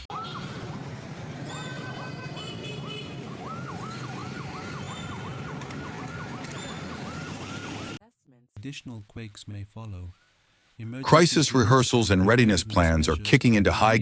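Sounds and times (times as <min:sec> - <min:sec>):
emergency vehicle siren: 0:00.0 - 0:08.0
low hum of traffic: 0:00.0 - 0:08.0.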